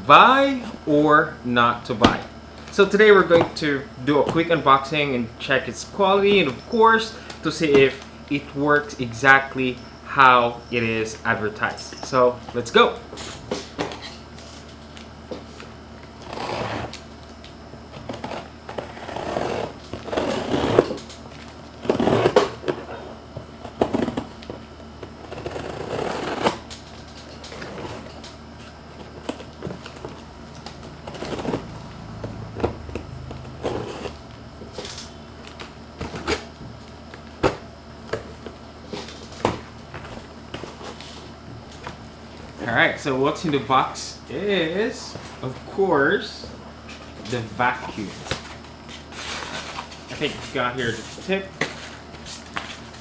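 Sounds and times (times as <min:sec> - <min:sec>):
packaging rustling and scraping: 0:13.2 - 0:37.6, 0:38.2 - 0:42.8, 0:46.8 - 0:53.0.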